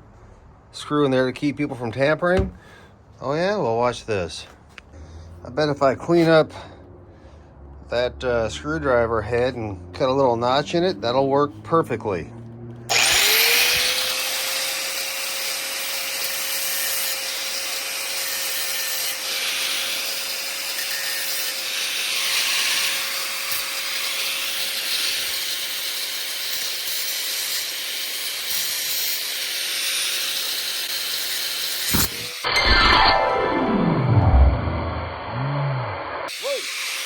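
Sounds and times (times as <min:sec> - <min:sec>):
power tool grinding steel: 0:12.9 - 0:32.8, 0:36.1 - 0:37.0.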